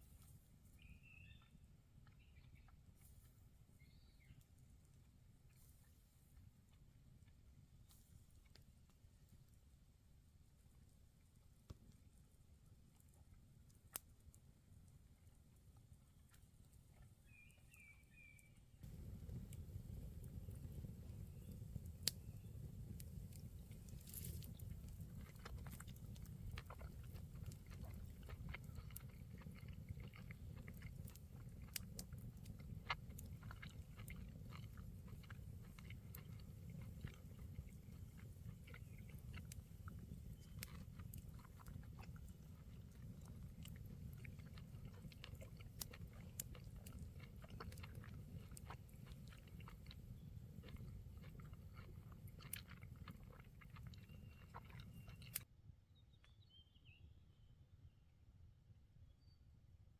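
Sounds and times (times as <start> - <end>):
low background hum: 18.8 - 55.4
person chewing food: 18.8 - 55.4.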